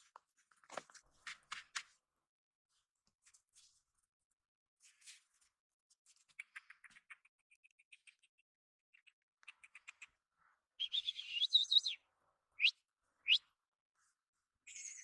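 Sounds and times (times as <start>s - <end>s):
small bird chirping: 6.3s - 10.2s, 10.8s - 12.0s, 12.6s - 13.5s, 14.7s - 15.0s.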